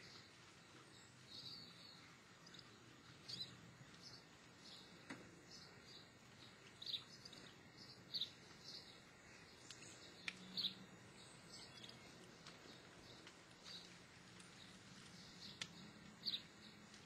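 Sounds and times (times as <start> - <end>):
bird chirping: 0.0 - 17.0
low background hiss: 0.0 - 17.0
soft clicks: 15.4 - 15.9.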